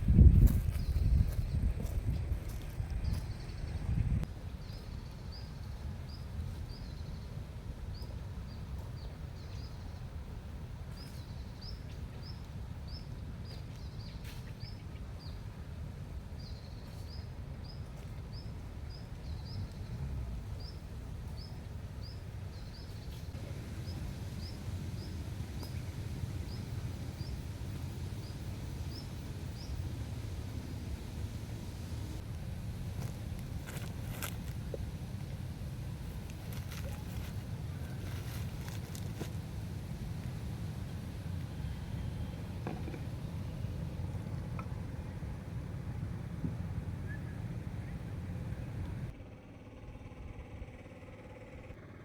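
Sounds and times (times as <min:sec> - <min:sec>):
low outdoor rumble: 0:00.0 - 0:52.0.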